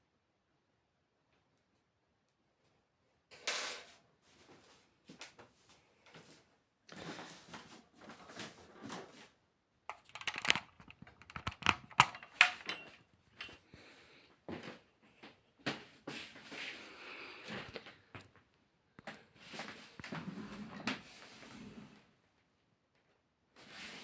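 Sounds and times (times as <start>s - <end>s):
metal parts clicking and scraping: 9.9s - 13.6s.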